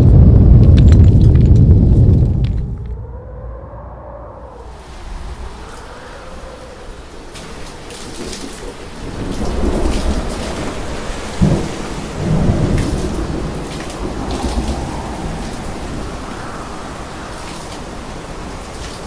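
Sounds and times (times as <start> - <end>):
sharp thunder crack: 0.0 - 3.2, 9.0 - 16.3
thunder rumbling: 0.0 - 19.0
steady rain: 4.5 - 19.0.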